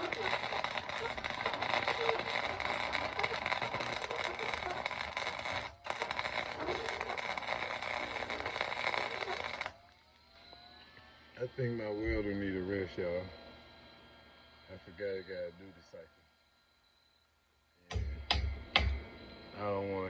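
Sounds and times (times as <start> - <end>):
arc welding crackle: 0.0 - 10.7.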